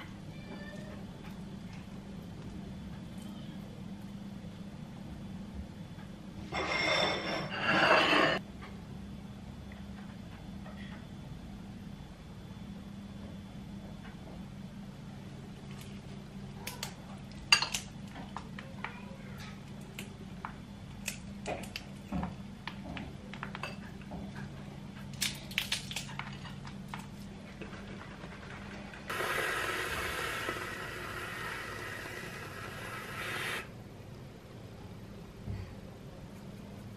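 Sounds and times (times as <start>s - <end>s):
dishes and utensils clinking: 6.5s - 8.4s
steady hiss: 29.1s - 33.8s.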